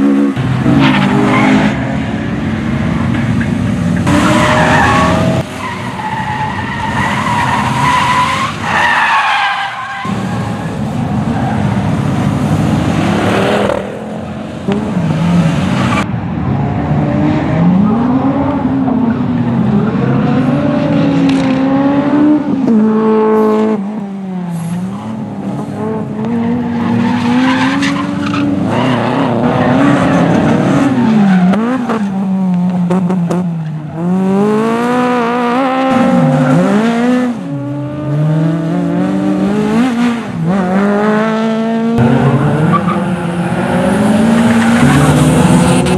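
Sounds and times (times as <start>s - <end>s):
rally car engines revving: 0.0s - 45.9s.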